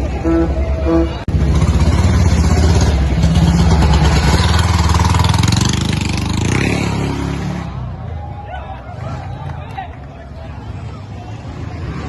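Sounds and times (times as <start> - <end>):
vehicle engine pulsing rumble: 0.0 - 12.0.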